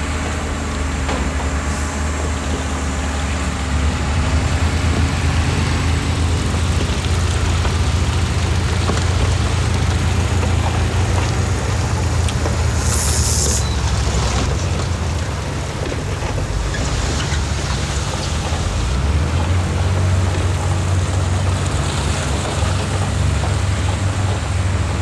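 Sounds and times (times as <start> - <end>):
diesel machinery engine rumble: 0.0 - 25.0
sharp air hiss: 12.7 - 14.4.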